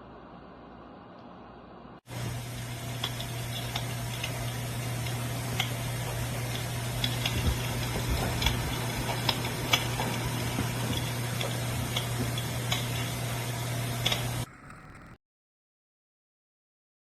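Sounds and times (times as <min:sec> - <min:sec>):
heater fan hum and hiss: 0:00.0 - 0:15.2
recorded fire crackling from speaker: 0:02.1 - 0:15.2.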